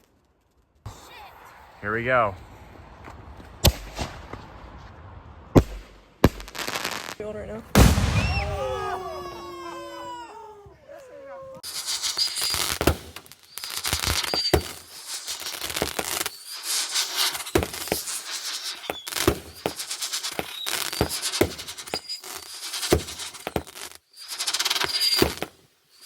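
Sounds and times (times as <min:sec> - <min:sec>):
fireworks bangs and crackles: 0:00.0 - 0:10.7, 0:11.4 - 0:26.0
fireworks whistles: 0:00.9 - 0:03.0, 0:05.6 - 0:07.2, 0:07.8 - 0:10.4, 0:11.6 - 0:26.0
fireworks hissing: 0:00.9 - 0:04.5, 0:05.6 - 0:10.3, 0:11.6 - 0:26.0.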